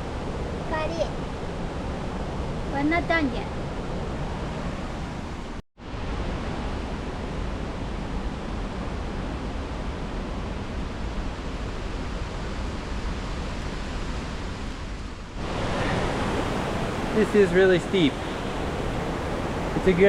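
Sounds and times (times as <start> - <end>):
rushing river or waterfall: 0.0 - 20.0.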